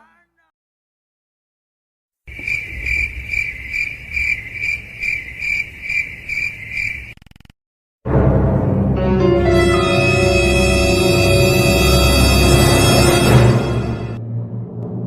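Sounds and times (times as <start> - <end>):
cricket chirping: 2.3 - 7.5
low rumble: 13.6 - 15.0.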